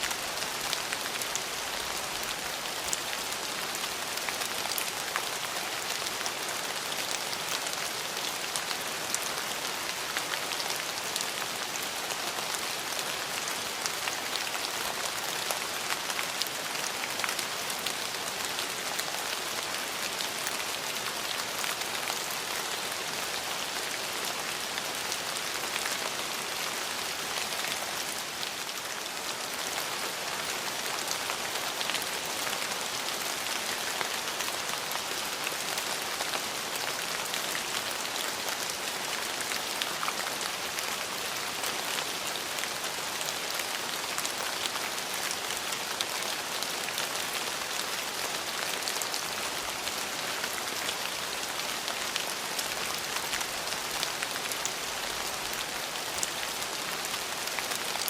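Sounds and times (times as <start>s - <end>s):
rain on hard surfaces: 0.0s - 58.0s.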